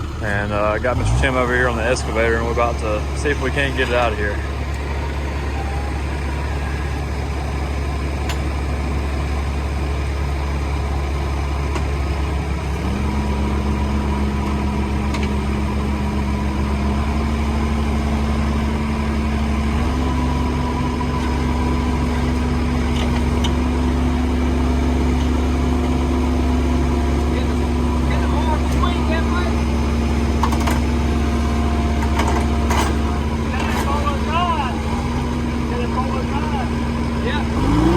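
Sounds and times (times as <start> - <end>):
excavator diesel engine revving: 0.0 - 37.9.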